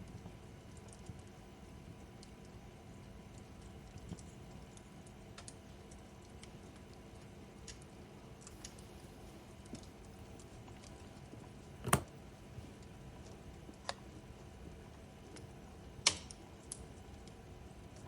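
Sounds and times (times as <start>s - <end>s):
wood fire crackling: 0.0s - 18.0s
loud fire snaps: 3.3s - 18.0s.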